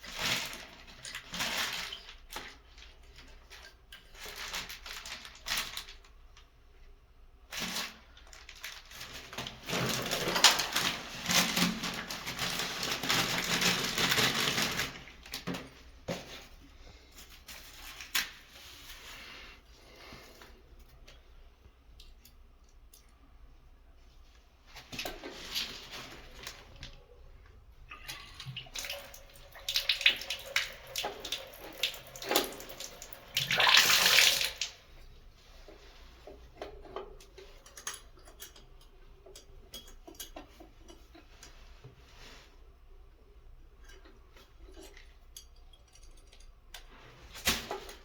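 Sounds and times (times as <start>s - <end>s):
water running and splashing: 27.9s - 34.8s.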